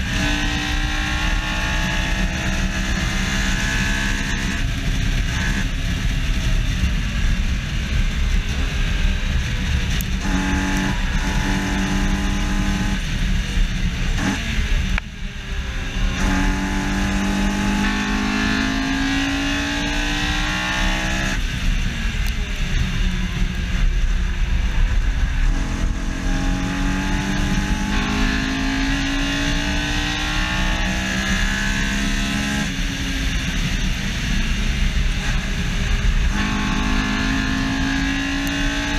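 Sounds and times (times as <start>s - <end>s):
car engine revving through gears: 0.0s - 38.9s
wind and road noise rumble: 0.0s - 38.9s.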